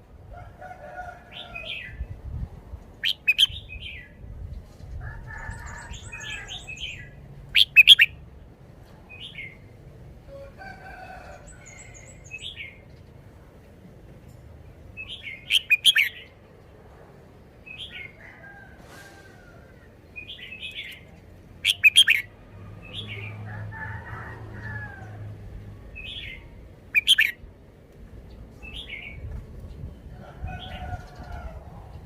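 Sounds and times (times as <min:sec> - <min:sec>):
bird singing chirpy phrases: 0:03.0 - 0:04.1, 0:06.5 - 0:08.2, 0:15.0 - 0:16.4, 0:20.2 - 0:22.3, 0:26.0 - 0:27.4.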